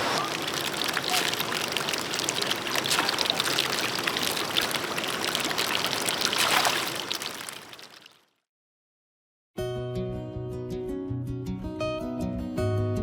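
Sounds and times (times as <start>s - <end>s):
water running and splashing: 0.0s - 8.2s.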